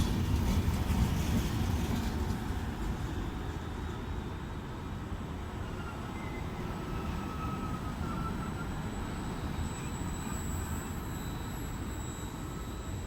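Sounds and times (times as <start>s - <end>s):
train rumbling past: 0.0s - 9.4s.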